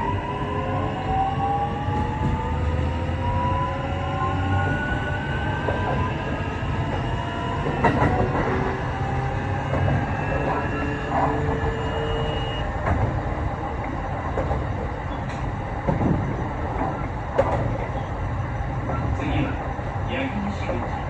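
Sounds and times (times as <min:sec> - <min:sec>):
electric train motors whining: 0:00.0 - 0:15.6
wheels rumbling on rail: 0:00.0 - 0:21.0.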